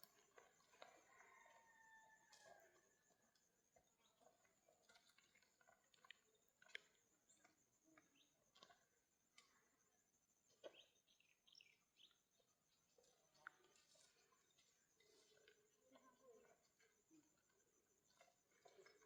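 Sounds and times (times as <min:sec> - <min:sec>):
small chirps: 0:00.0 - 0:19.0.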